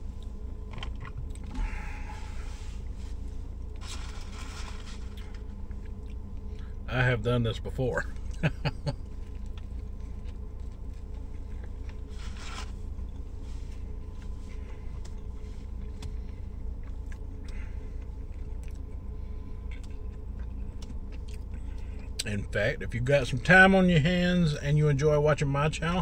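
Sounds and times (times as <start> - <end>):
steady low hum: 0.0 - 26.0
person eating a sandwich: 0.1 - 6.8, 8.1 - 22.3
rustling and scraping: 0.6 - 6.0, 9.2 - 16.4.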